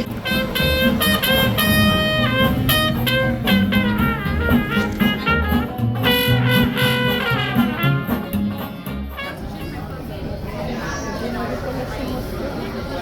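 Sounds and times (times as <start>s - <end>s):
bass line: 0.0s - 9.3s
horns playing sliding melody: 0.0s - 9.7s
jazz band playing: 0.0s - 10.1s.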